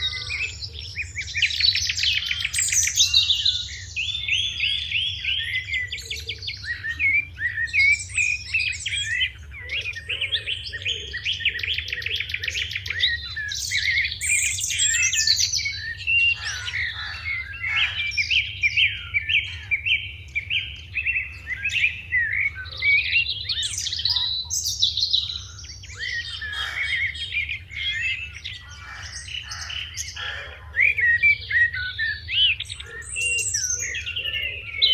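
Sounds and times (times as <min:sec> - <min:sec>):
sparrows chirping: 0:00.0 - 0:34.9.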